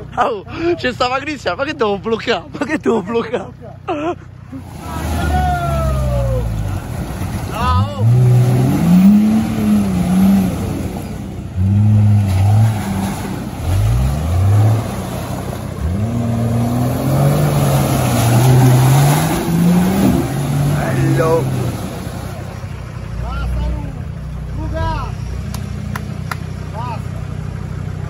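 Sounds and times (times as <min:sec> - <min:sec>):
engine revving hard: 0:07.6 - 0:22.0.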